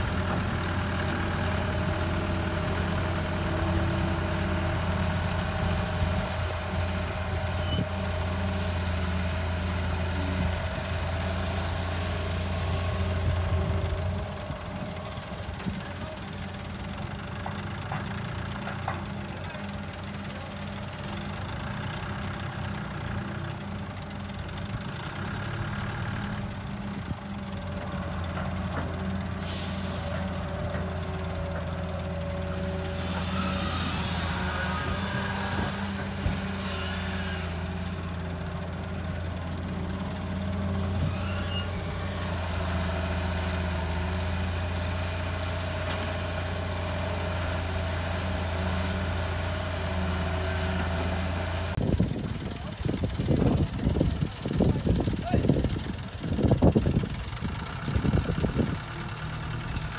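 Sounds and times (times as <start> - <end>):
excavator diesel engine working: 0.0 - 59.9.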